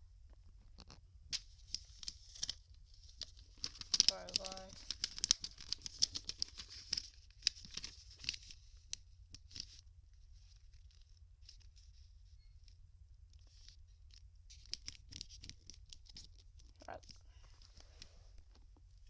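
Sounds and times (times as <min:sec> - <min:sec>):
paper folding and rustling: 0:00.7 - 0:12.1, 0:13.4 - 0:18.7.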